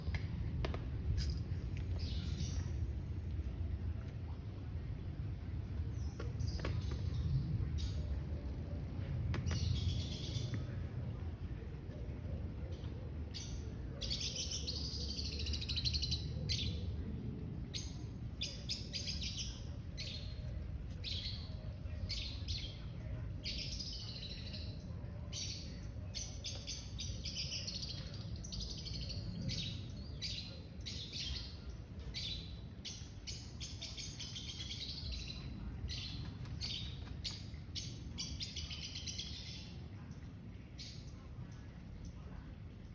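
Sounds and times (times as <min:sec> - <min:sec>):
steady low rumble: 0:00.0 - 0:14.0, 0:14.9 - 0:26.4.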